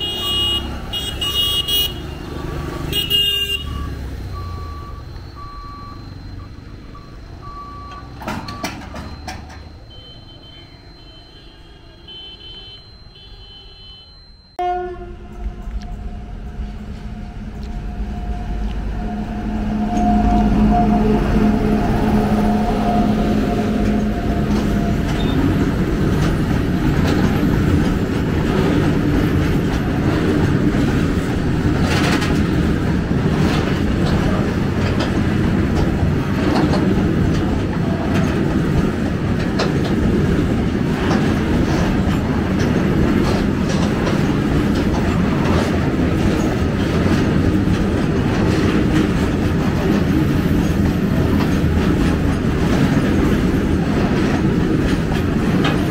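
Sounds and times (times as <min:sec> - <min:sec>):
train wheels clattering over rail joints: 0:23.7 - 0:55.9.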